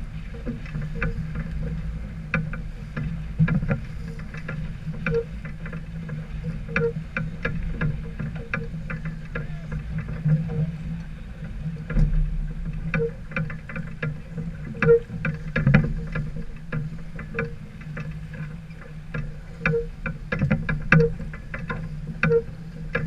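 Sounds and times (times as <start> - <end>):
steady low rumble: 0.0 - 23.0
small clicks and knocks: 0.3 - 23.0.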